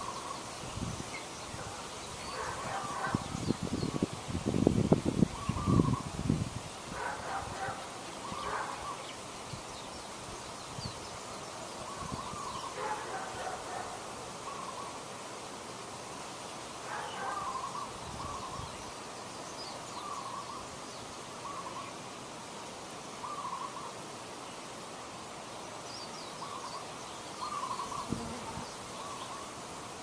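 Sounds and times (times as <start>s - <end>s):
outdoor hiss: 0.0s - 30.0s
bird calling: 1.6s - 4.0s, 5.3s - 6.1s, 23.2s - 24.0s, 26.4s - 28.3s.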